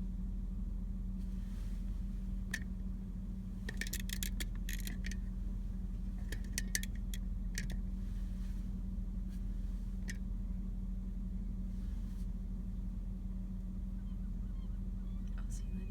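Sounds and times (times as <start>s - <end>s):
vehicle engine idling: 0.0s - 15.9s
sharp clicks and rattles: 2.4s - 2.7s, 3.6s - 7.9s.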